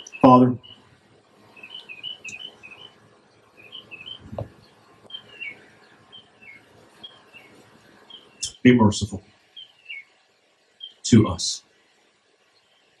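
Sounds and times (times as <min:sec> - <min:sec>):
small birds chirping: 0:00.0 - 0:13.0
low thump: 0:04.2 - 0:04.6.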